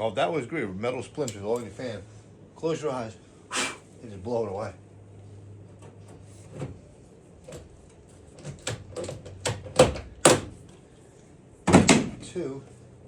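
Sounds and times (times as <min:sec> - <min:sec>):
handling knocks and clicks: 0:07.5 - 0:10.8.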